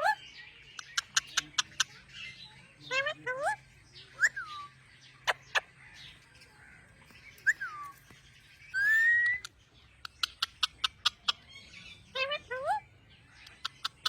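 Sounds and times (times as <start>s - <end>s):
parrot calling: 2.8s - 6.0s, 8.7s - 14.0s.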